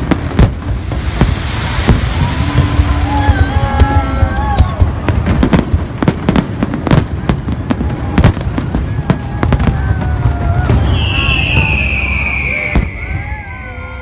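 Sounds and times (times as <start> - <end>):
steady low rumble: 0.0 - 8.8
fireworks bangs and crackles: 0.0 - 14.0.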